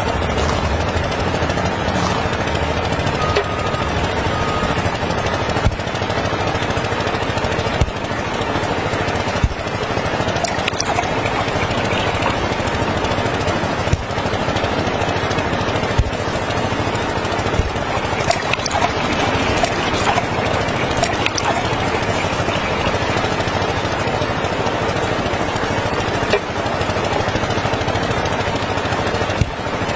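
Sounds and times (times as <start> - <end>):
small diesel engine clattering: 0.0 - 10.5, 12.4 - 17.9, 23.3 - 29.9.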